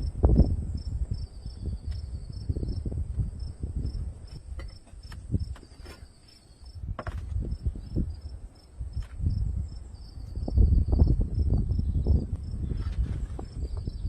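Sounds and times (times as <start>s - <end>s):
insects chirping: 0.0s - 14.0s
low rumbles and knocks: 2.7s - 6.0s, 6.8s - 7.8s.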